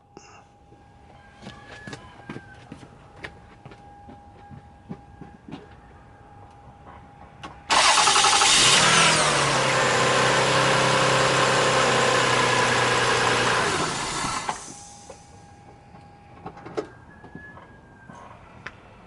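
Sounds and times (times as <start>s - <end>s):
car engine running: 7.7s - 14.8s
starter motor cranking: 7.7s - 14.8s.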